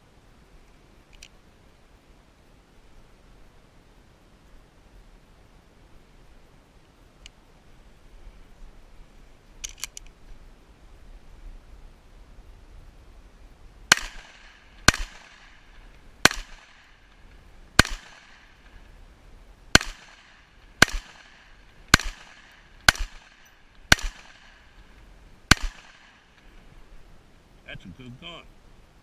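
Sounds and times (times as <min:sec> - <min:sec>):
rifle shots with echo: 0:13.9 - 0:17.2, 0:17.8 - 0:18.8, 0:19.7 - 0:24.9, 0:25.5 - 0:26.5.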